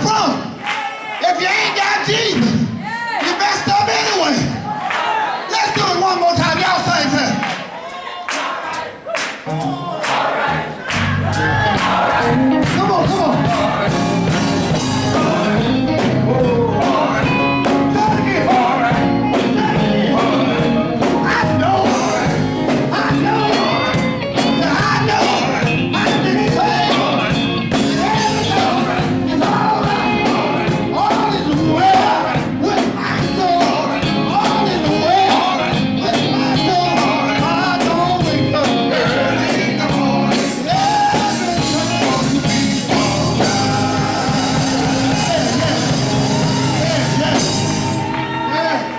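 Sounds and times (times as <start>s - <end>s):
voices singing gospel: 0.0s - 48.9s
band playing: 8.8s - 48.9s
drums beating steadily: 10.9s - 48.1s.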